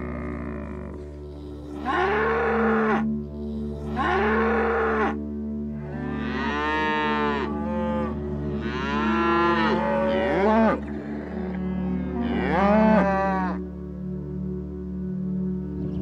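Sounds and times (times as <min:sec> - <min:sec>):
animal long drawn-out calls: 0:00.0 - 0:01.1
background music: 0:00.0 - 0:16.0.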